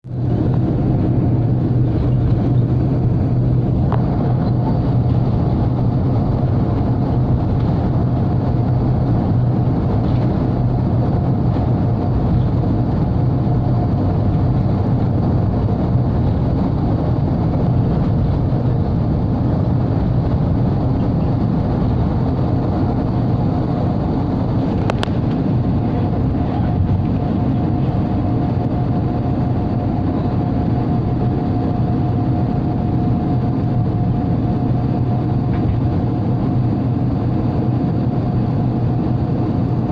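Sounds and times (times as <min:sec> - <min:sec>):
airplane engine hum: 0:00.0 - 0:39.9
faint steady whine: 0:00.1 - 0:39.9
rush of air: 0:00.1 - 0:39.9.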